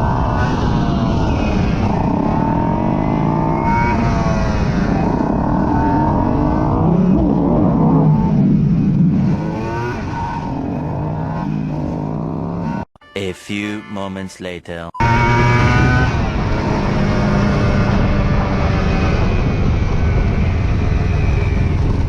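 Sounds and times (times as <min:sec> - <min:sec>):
motorcycle engine accelerating: 0:15.0 - 0:22.0.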